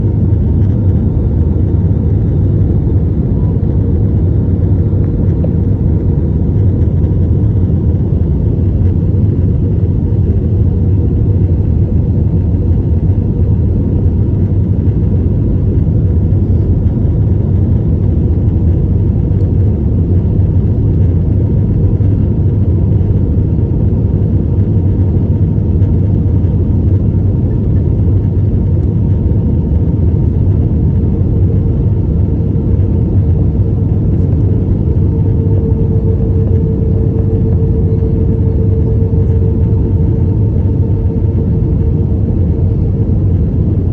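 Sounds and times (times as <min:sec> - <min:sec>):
faint steady hum: 0:00.0 - 0:43.9
low rumble of jet engines: 0:00.0 - 0:43.9.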